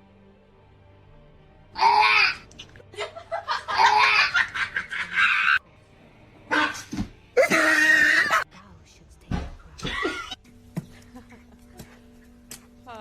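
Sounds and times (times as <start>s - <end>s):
person laughing loudly: 2.9s - 5.6s.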